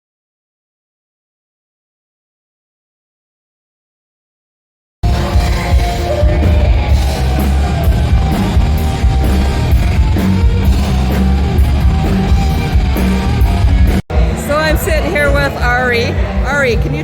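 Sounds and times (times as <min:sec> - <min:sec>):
drum kit beat: 0:05.0 - 0:16.0
distorted guitars: 0:05.0 - 0:17.0.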